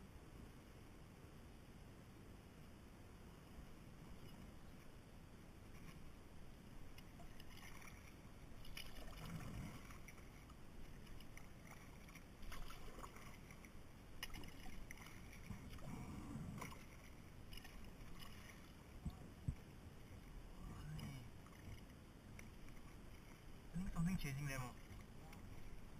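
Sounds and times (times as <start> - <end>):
paddle splashing water: 6.8 - 25.9.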